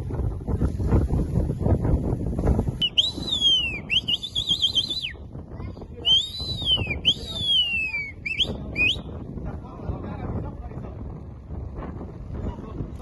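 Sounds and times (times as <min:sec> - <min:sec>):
dolphin whistles: 0:02.8 - 0:05.1, 0:06.1 - 0:09.0.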